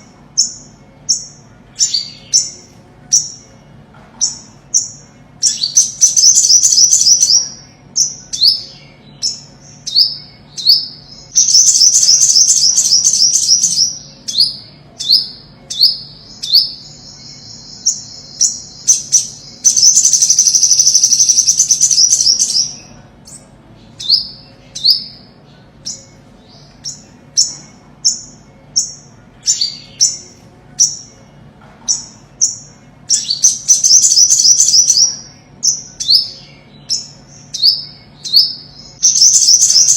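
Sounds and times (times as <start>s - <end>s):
bird chirping: 0.0s - 39.9s
fast buzzy bird trills: 4.2s - 23.4s.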